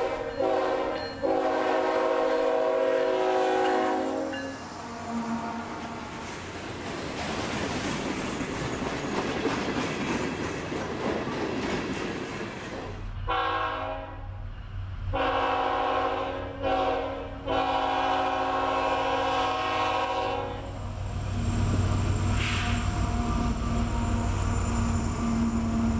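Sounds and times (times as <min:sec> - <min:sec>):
train horn blasts: 0:00.0 - 0:06.1, 0:13.3 - 0:14.4, 0:15.1 - 0:20.8
freight train rumbling on rails: 0:00.0 - 0:25.9.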